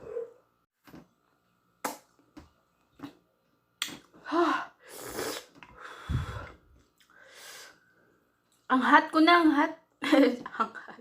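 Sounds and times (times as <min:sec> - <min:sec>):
hissing breaths: 0:04.4 - 0:07.9.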